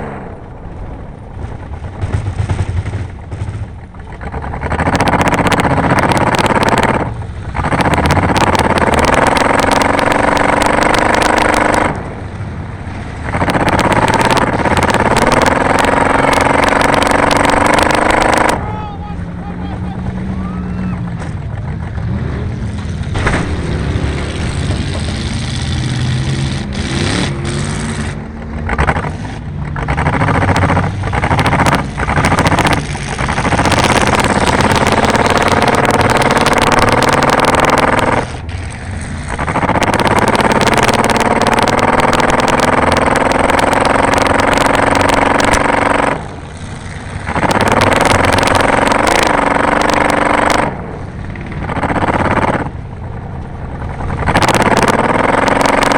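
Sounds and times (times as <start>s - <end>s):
loud noisy clatter: 0.0s - 12.4s, 13.0s - 55.9s
car engine accelerating: 0.0s - 55.9s.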